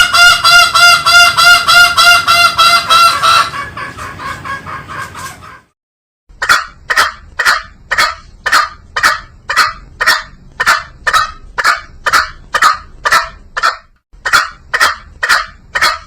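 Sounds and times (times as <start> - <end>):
junglefowl harsh calls: 0.0 - 5.7.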